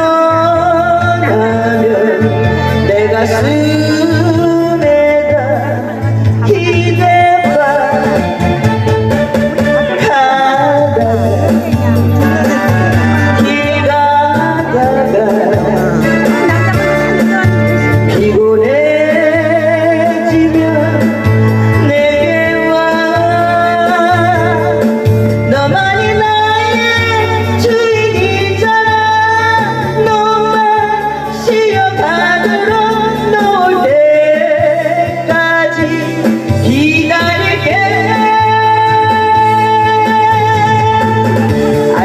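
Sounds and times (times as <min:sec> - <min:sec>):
person singing with wavering notes: 0:00.0 - 0:42.0
steady bass beat: 0:06.2 - 0:28.3.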